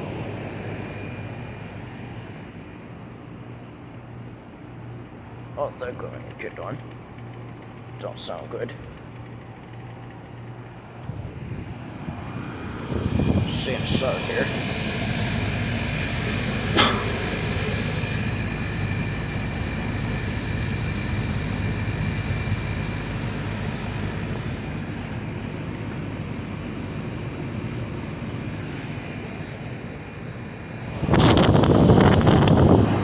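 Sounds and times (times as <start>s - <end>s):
air conditioner compressor and fan hum: 0.0s - 33.0s
loud rushing noise: 11.6s - 24.9s
sharp click: 16.7s - 17.8s.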